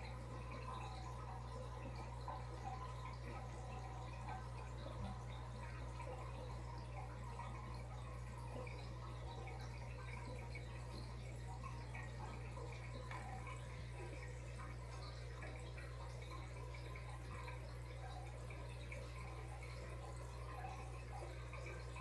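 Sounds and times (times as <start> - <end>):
steady low hum: 0.0 - 22.0
water trickling and dripping: 0.0 - 22.0.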